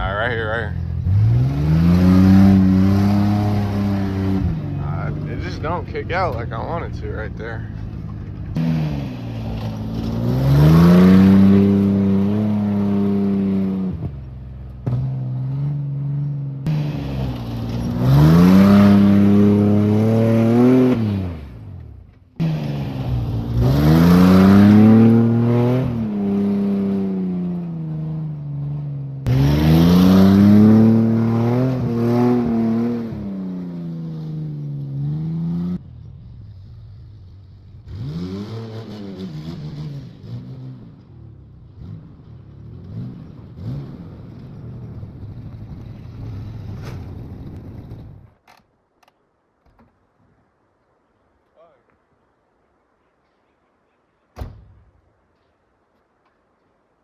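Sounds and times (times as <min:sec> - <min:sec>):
pickup truck engine revving: 0:00.0 - 0:35.8, 0:37.2 - 0:41.0.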